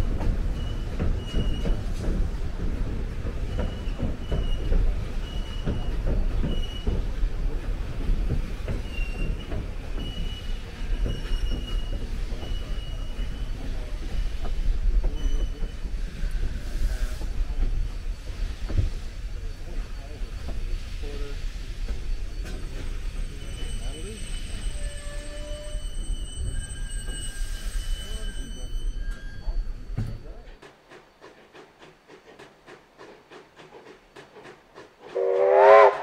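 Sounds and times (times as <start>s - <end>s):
train rumbling past: 0.0s - 36.0s
high wheel-flange squeal: 0.5s - 1.9s, 8.5s - 30.4s.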